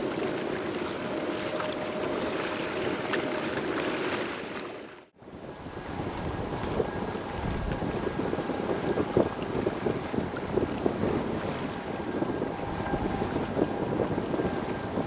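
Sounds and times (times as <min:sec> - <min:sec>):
wind buffeting microphone: 0:05.2 - 0:15.0
airliner jet noise: 0:05.4 - 0:15.0.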